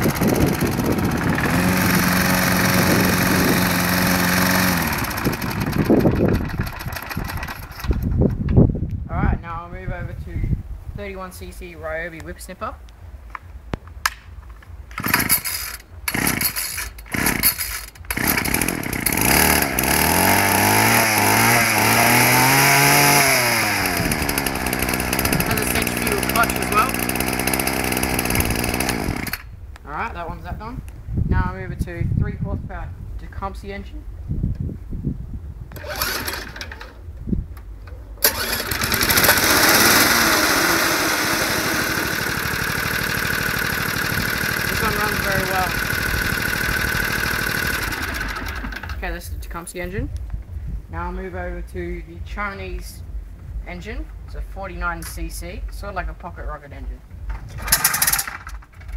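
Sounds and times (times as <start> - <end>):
line trimmer engine running: 0.0 - 8.4, 14.7 - 29.6, 35.7 - 37.1, 38.2 - 49.5, 54.7 - 58.9.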